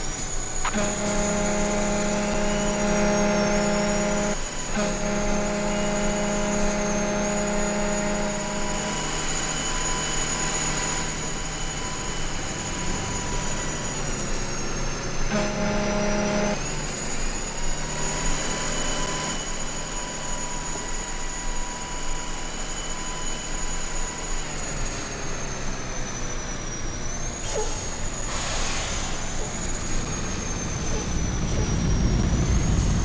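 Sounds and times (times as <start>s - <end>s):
vehicle engine hum: 0.0s - 9.2s, 11.8s - 16.6s, 26.9s - 33.0s
high-pitched whine: 0.0s - 17.2s, 18.6s - 33.0s
road noise: 27.6s - 33.0s.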